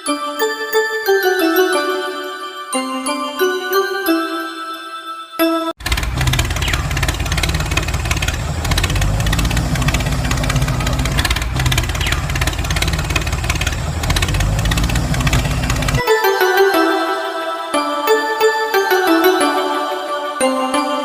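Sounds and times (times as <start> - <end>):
small engine running with ticking rattle: 5.8 - 16.0.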